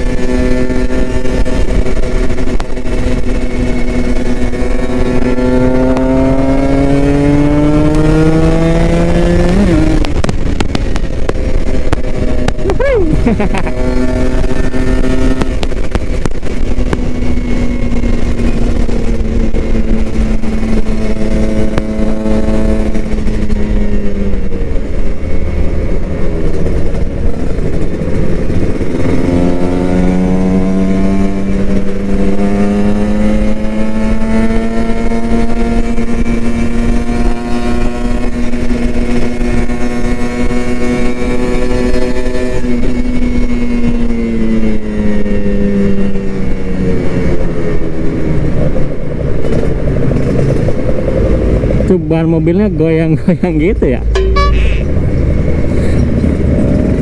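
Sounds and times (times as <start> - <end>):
motorcycle engine running hard: 0.0 - 57.0.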